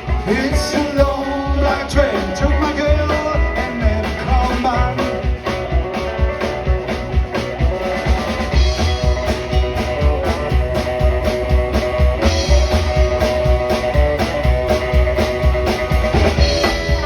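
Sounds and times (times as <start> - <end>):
drum kit steady beat: 0.0 - 17.0
live rock band playing: 0.0 - 17.0.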